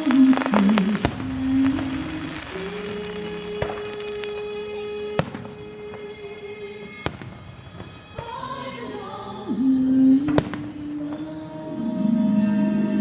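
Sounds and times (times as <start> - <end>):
firework bangs: 0.0 - 9.1, 10.2 - 11.4
music with wavering melody: 0.0 - 13.0.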